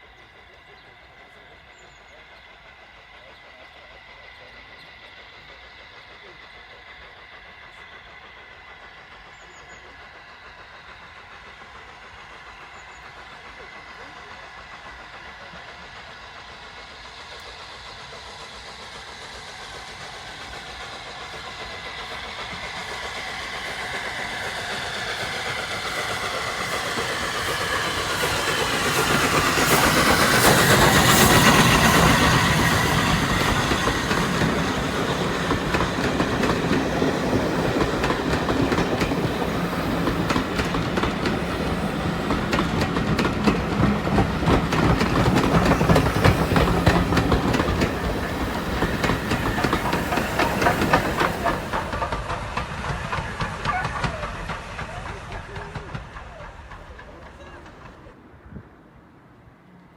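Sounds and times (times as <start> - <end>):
train passing: 0.0 - 59.9
carriages clattering over rail joints: 22.3 - 58.2.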